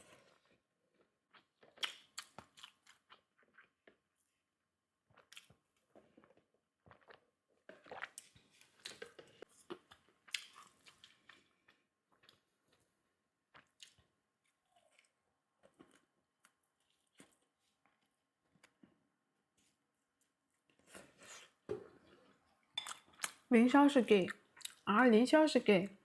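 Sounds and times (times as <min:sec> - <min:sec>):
person chewing crunchy food: 0:00.0 - 0:04.2, 0:05.0 - 0:18.9, 0:20.7 - 0:23.5.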